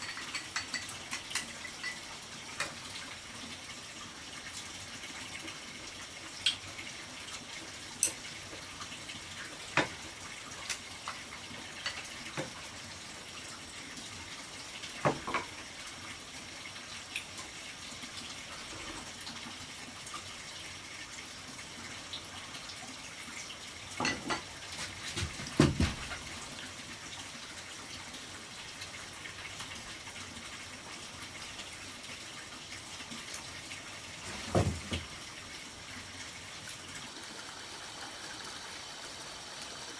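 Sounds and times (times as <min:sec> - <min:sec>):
running water: 0:00.0 - 0:39.9
sharp knocks and clatters: 0:24.1 - 0:26.3.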